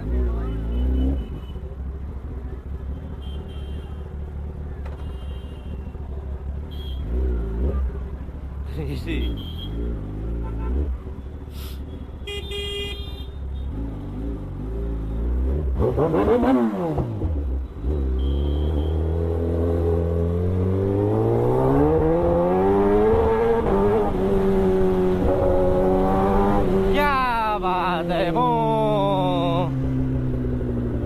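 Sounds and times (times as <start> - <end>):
motorcycle engine revving: 13.6 - 27.1, 28.1 - 31.0.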